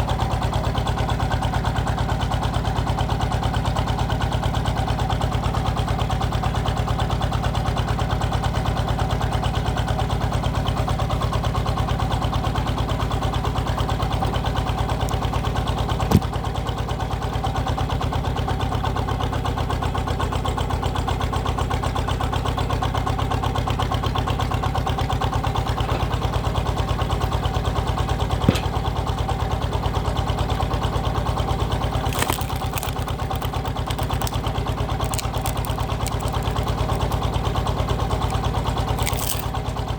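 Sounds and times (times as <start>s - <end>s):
diesel engine running: 10.4s - 39.9s
wood cracking: 28.4s - 29.0s, 31.7s - 39.6s.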